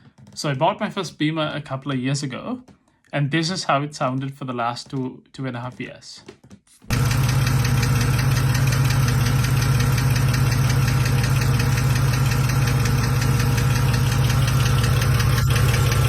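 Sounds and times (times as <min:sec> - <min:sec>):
car engine idling: 0:06.9 - 0:16.0
fast even valve ticking: 0:06.9 - 0:16.0.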